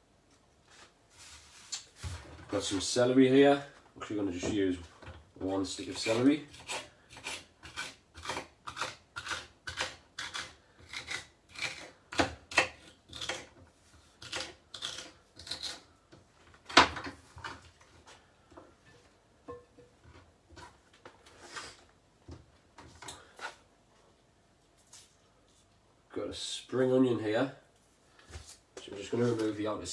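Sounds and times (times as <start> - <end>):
knife chopping celery on board: 5.9 - 13.6, 14.2 - 15.8.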